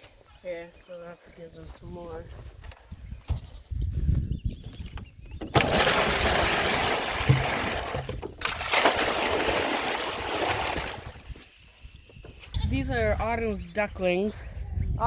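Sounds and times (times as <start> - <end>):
water pouring into container: 5.5 - 11.3.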